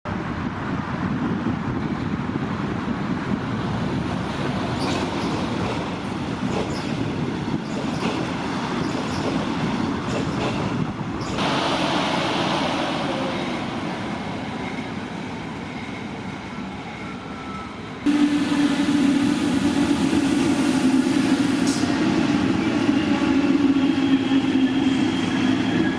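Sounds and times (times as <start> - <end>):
train rumbling past: 0.1 - 25.9
train wheels clicking: 4.8 - 12.2.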